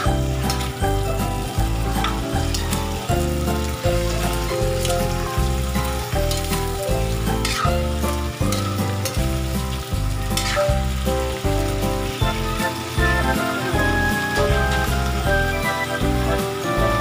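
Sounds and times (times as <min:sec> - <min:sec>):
background music with bass line: 0:00.0 - 0:17.0
shrimp sizzling in a wok: 0:00.0 - 0:17.0
utensil scraping a pan: 0:07.4 - 0:07.8, 0:10.4 - 0:10.7.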